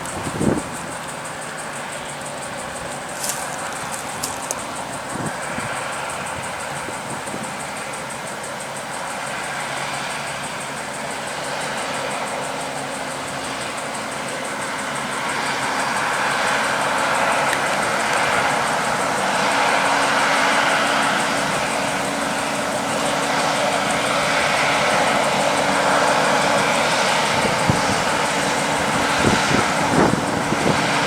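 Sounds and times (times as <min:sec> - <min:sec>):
heavy trucks on road: 0:00.0 - 0:08.2, 0:15.1 - 0:31.0.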